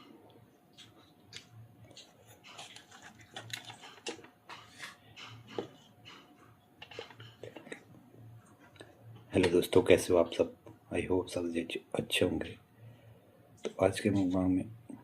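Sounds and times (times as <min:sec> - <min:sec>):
person eating clicks and smacks: 0:00.7 - 0:07.9.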